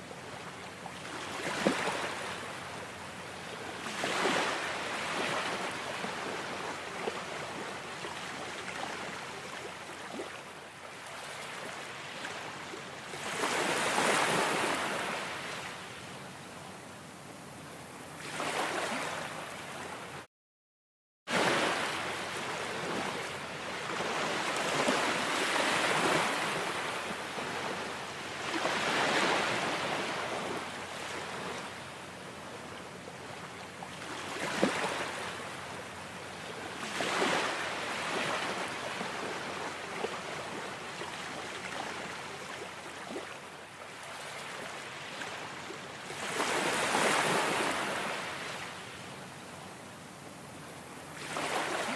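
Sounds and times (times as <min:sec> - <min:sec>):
ocean waves washing in: 0:21.3 - 0:32.5.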